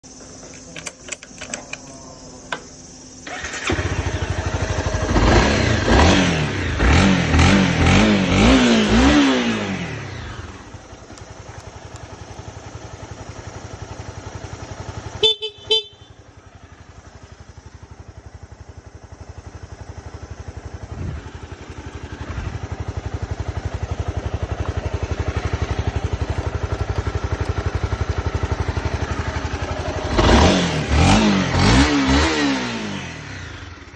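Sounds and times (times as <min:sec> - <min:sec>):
motorcycle engine revving and idling: 0:00.0 - 0:33.9
motorcycle horn beeps: 0:15.0 - 0:16.4.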